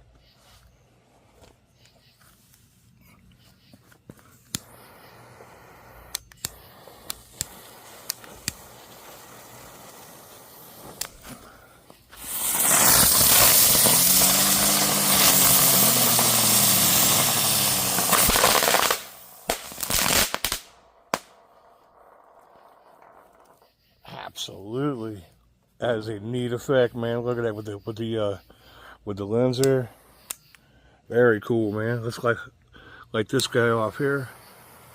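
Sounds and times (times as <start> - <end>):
crackling pops: 4.1 - 23.7
firework rushing hiss and whirr: 4.4 - 23.6, 33.8 - 34.9
firework pops: 4.5 - 4.8, 6.0 - 11.4, 12.1 - 21.4.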